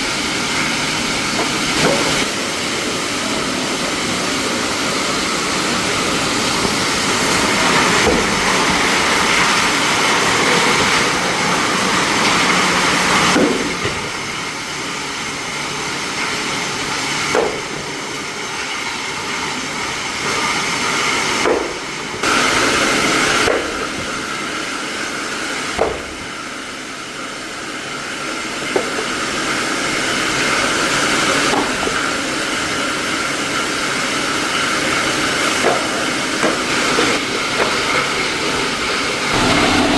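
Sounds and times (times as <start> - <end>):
factory machinery hissing: 0.0 - 39.9.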